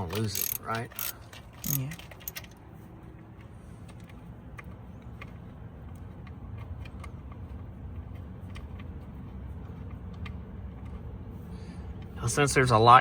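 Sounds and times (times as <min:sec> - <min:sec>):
metal tools clicking: 0:00.0 - 0:02.6.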